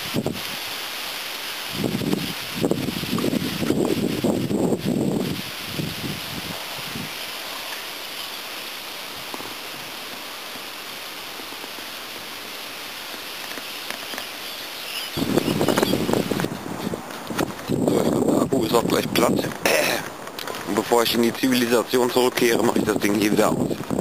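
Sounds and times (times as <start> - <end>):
steady outdoor hiss: 0.0 - 24.0
faint chirps: 13.6 - 16.1.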